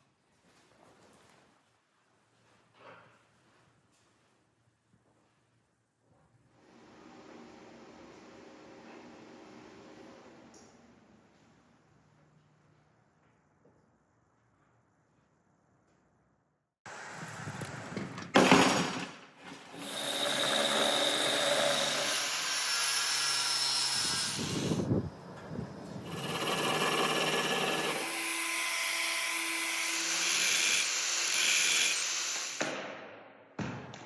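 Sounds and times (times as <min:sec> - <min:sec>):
power tool running: 0:19.7 - 0:24.9, 0:25.9 - 0:32.7.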